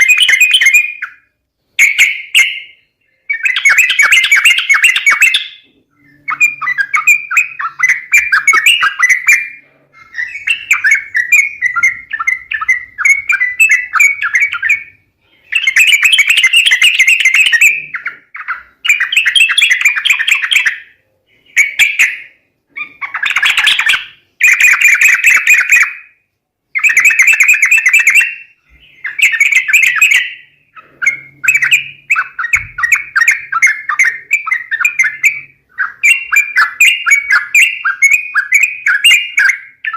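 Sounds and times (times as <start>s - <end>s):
bulbuls chattering calls: 3.3s - 14.8s.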